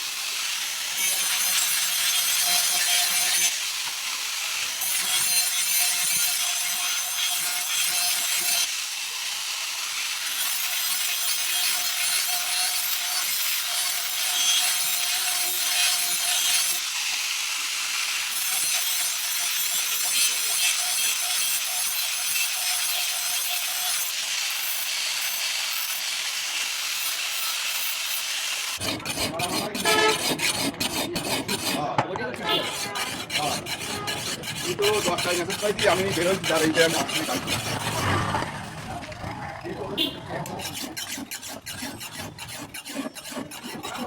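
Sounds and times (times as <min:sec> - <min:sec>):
blade scraping on sharpener: 0:28.8 - 0:38.9, 0:40.0 - 0:44.0.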